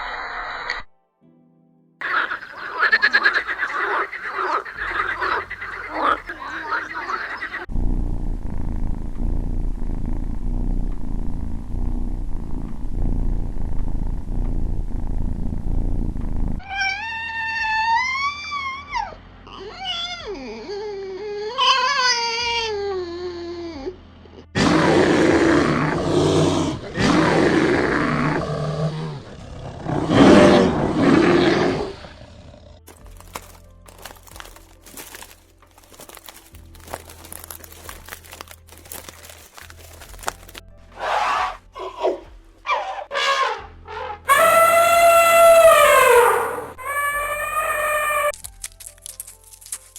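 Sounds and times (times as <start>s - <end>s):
low rumbling growl: 7.7s - 16.6s
big cat roaring: 24.6s - 32.8s
sharp crackling clicks: 32.9s - 40.7s.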